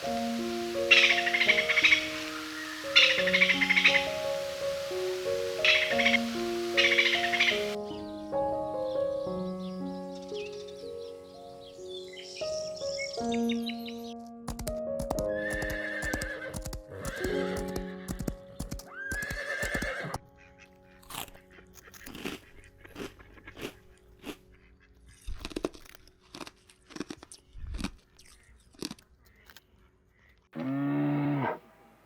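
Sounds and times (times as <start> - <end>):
soft background music: 0.0 - 28.5
crunching clicks: 14.4 - 19.9, 21.0 - 24.4, 25.2 - 29.8
horse whinnying: 15.4 - 20.2, 30.6 - 31.6.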